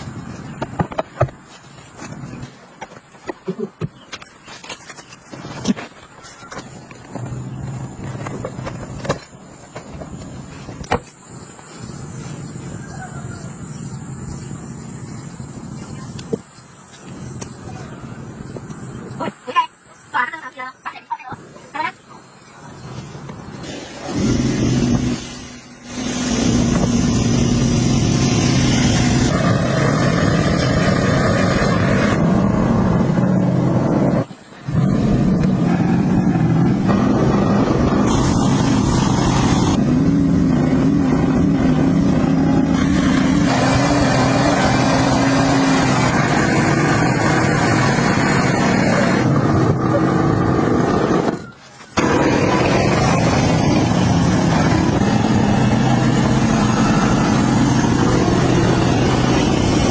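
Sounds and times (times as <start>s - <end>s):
vehicle engine running: 22.8s - 59.9s.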